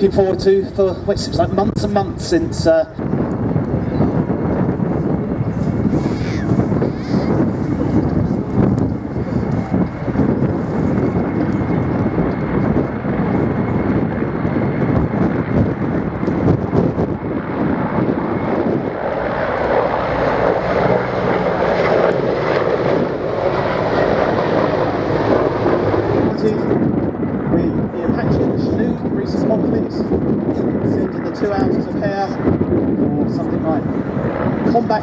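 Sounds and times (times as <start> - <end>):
helicopter engines and rotors: 0.0 - 35.0.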